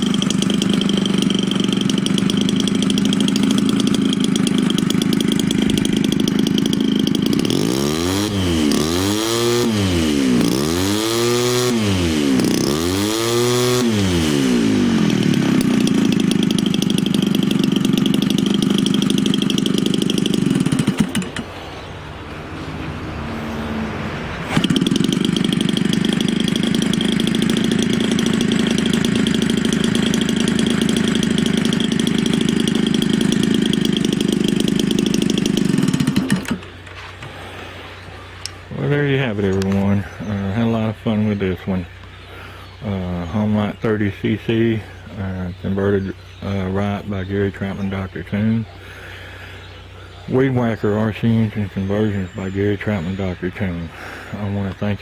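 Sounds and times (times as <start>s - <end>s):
model airplane engine revving: 0.0s - 22.4s, 23.0s - 50.0s.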